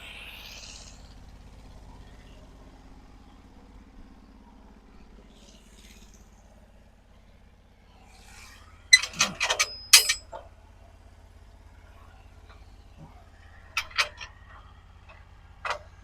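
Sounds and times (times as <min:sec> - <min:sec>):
metallic clanks and ratchet clicks: 0:08.9 - 0:10.4, 0:13.8 - 0:16.0.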